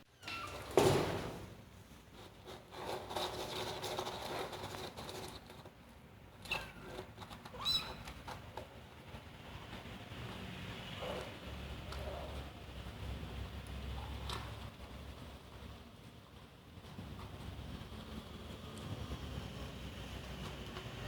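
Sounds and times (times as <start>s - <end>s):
high squeaky kitten calls: 0.1s - 0.6s, 6.4s - 8.1s
kitten scratching in cat litter: 1.8s - 15.3s.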